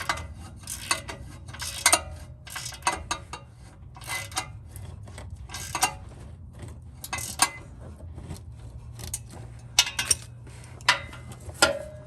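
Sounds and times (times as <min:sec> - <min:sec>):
wrench and metal parts clinking: 0:00.0 - 0:04.6, 0:05.5 - 0:06.0, 0:07.0 - 0:07.6, 0:09.0 - 0:12.0.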